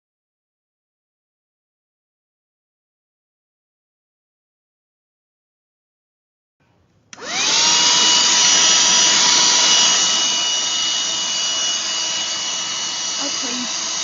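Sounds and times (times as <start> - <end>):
handheld vacuum motor whine: 7.2 - 14.0.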